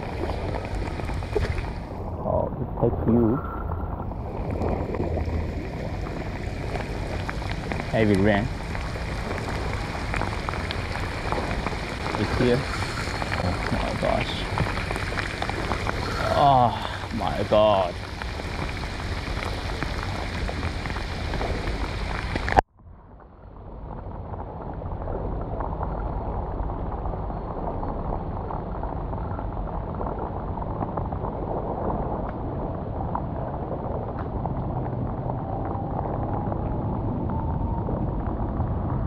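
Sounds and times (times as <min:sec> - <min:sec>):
heavy rain on water: 0:00.0 - 0:22.6, 0:25.2 - 0:39.0.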